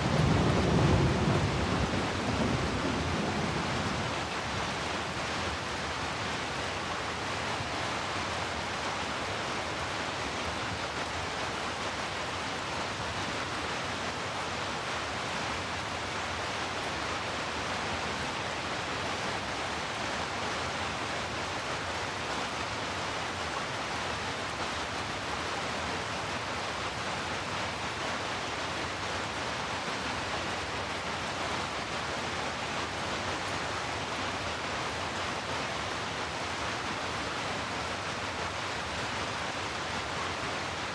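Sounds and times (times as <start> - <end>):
heavy rainfall: 0.0 - 40.9.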